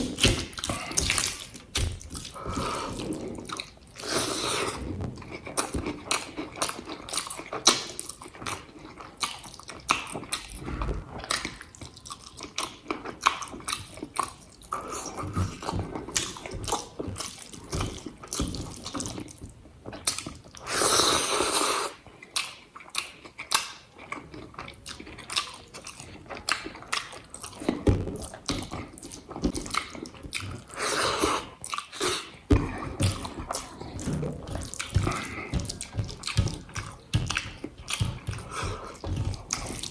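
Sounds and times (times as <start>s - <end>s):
wet chewing and lip smacking: 0.0s - 20.7s, 21.6s - 39.9s.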